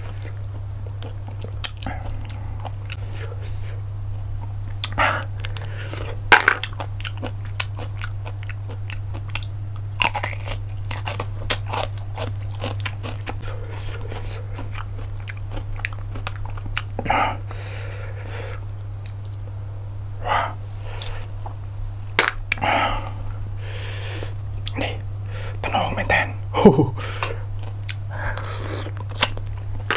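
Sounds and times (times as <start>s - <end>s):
chewing and crunching shellfish: 0.0s - 19.5s, 27.1s - 29.9s
steady low hum: 0.0s - 29.9s.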